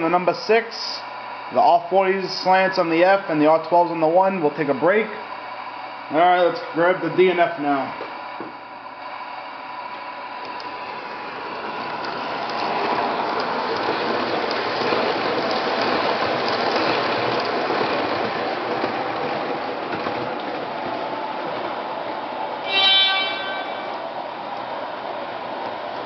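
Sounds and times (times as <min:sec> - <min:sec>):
model train wheels clattering: 0:11.9 - 0:20.6
model train horn blast: 0:22.6 - 0:24.0.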